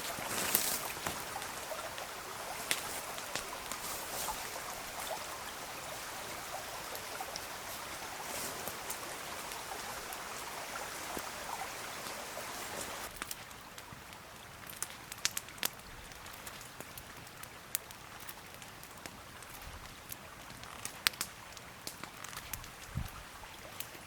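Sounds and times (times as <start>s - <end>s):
river water rushing: 0.0s - 13.1s.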